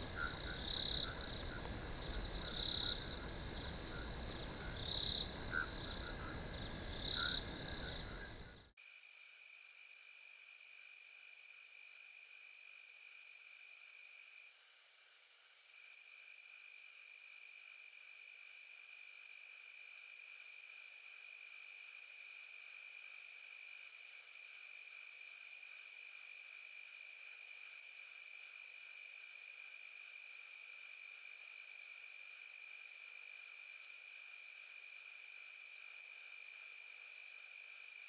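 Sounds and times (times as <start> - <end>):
crickets trilling: 0.0 - 8.7
high-pitched cricket chorus: 0.0 - 8.7
pulsing insect call: 0.0 - 8.7.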